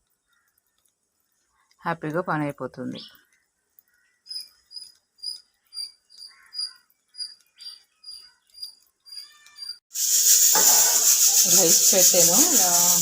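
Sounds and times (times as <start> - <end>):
small animal chirping: 3.8 - 13.0.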